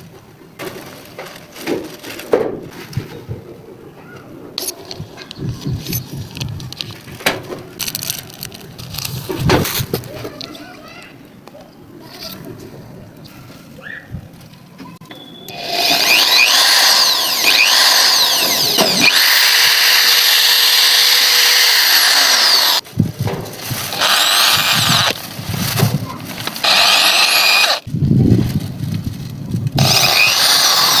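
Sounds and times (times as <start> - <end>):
power drill whining: 15.5 - 22.8, 23.9 - 25.2, 26.5 - 27.9, 29.8 - 31.0.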